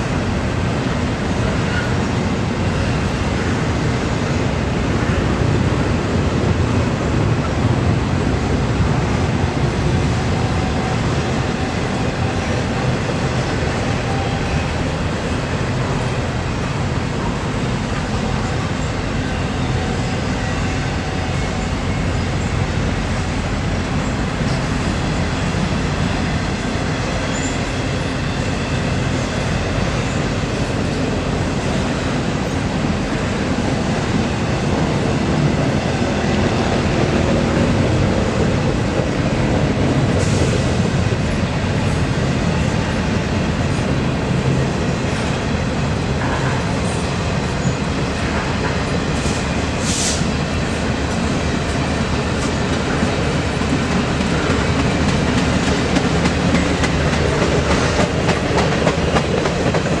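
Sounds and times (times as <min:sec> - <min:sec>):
freight train wheels on rails: 0:00.0 - 1:00.0
high wheel squeal: 0:27.0 - 0:29.1.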